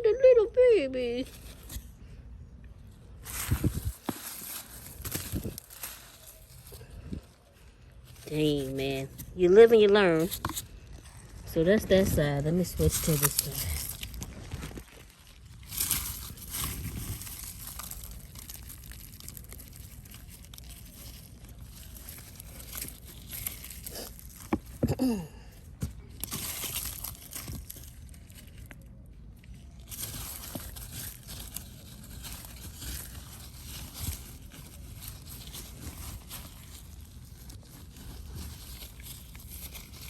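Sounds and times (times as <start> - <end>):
hands rummaging through soil: 1.0 - 40.0.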